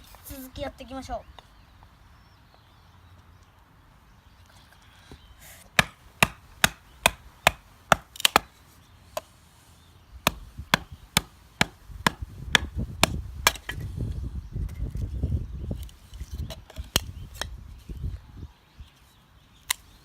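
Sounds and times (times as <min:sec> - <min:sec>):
sharp wooden knocks: 0:05.8 - 0:08.5, 0:10.3 - 0:13.8.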